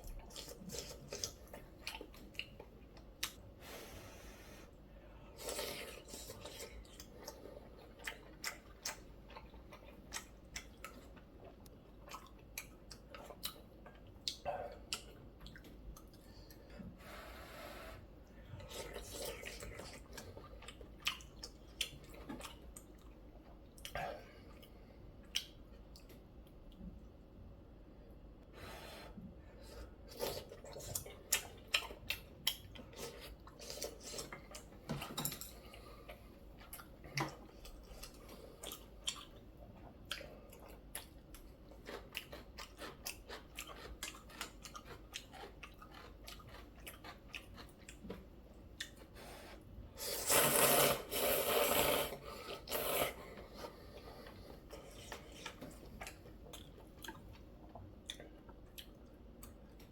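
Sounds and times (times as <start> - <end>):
crunchy chewing: 35.7 - 48.2
slurping noodles: 49.2 - 55.4.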